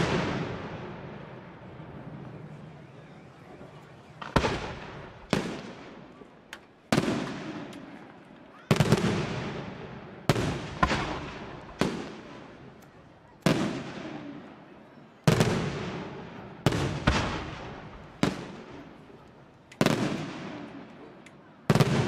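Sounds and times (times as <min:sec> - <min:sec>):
firework bangs echoing: 0:00.0 - 0:02.2, 0:04.1 - 0:06.2, 0:06.9 - 0:08.0, 0:08.7 - 0:12.7, 0:13.4 - 0:14.4, 0:15.3 - 0:19.0, 0:19.8 - 0:21.0, 0:21.7 - 0:22.0.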